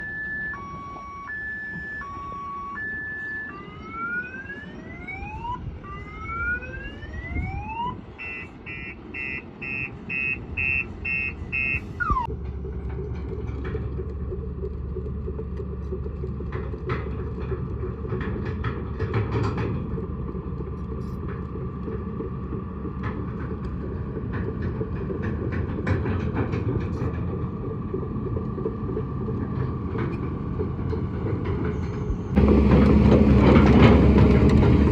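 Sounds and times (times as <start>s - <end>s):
electronic two-tone siren: 0.0s - 12.3s
diesel engine running: 0.0s - 34.9s
metallic knocks and clanks: 12.2s - 34.9s.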